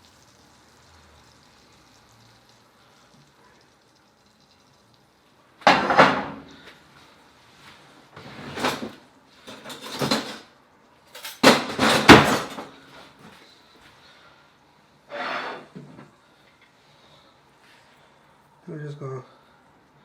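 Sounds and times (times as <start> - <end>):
dishes and utensils clattering: 5.6 - 6.6, 8.4 - 10.5, 11.2 - 12.8.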